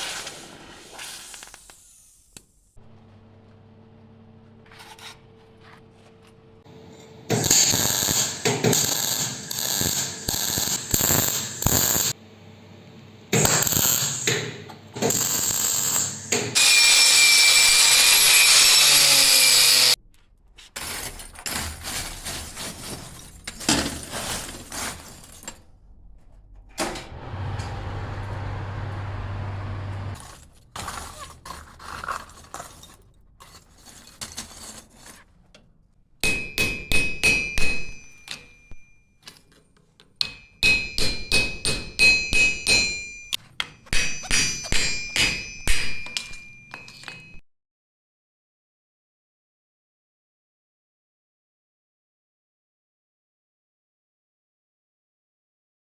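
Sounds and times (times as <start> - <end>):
hammer striking iron anvil: 6.9 - 12.2, 13.4 - 16.6, 36.2 - 39.0, 40.2 - 47.4.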